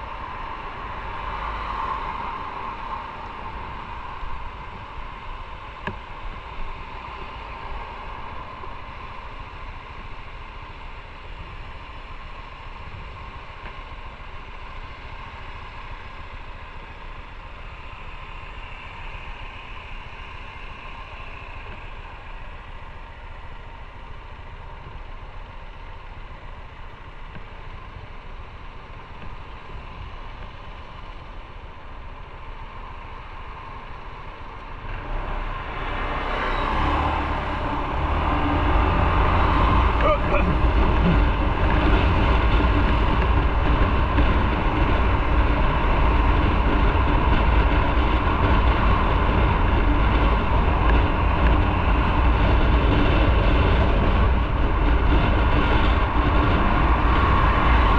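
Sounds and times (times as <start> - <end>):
motorcycle engine idling: 3.3 - 34.9.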